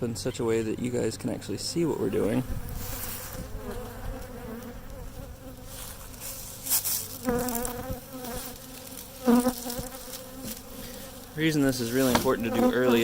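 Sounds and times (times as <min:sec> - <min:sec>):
honeybees buzzing: 0:00.4 - 0:13.0
bee flying past microphone: 0:02.2 - 0:13.0
short rustling noises: 0:05.0 - 0:12.5.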